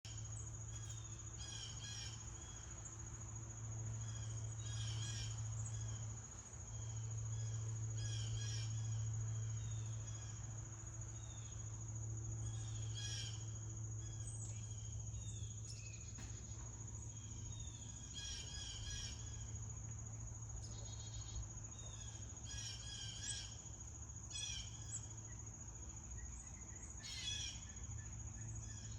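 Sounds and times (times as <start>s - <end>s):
high insect drone: 0.1s - 28.9s
bird calling: 26.2s - 27.8s.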